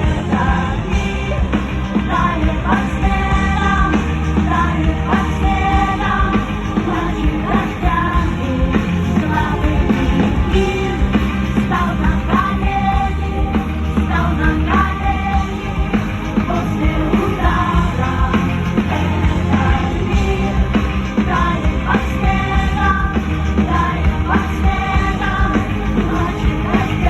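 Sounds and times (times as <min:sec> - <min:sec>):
live rock band playing: 0:00.0 - 0:27.0.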